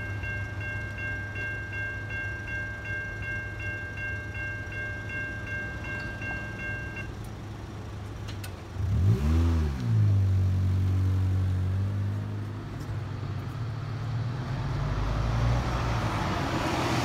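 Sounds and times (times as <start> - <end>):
bus engine and tyre noise: 0.0 - 17.0
car engine revving: 8.8 - 12.9.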